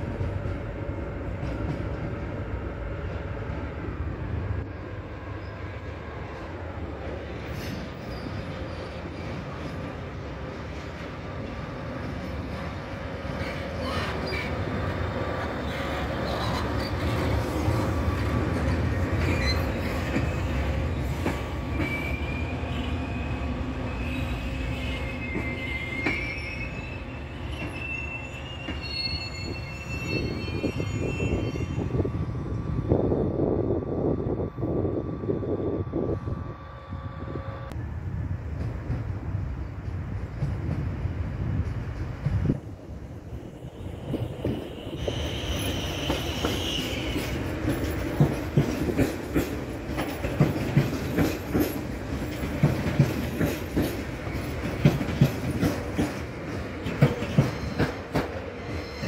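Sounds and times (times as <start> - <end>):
train coaches rumbling past: 0.0 - 59.0
wheel squeal: 7.5 - 9.8, 19.2 - 20.7, 21.6 - 32.0, 58.6 - 59.0.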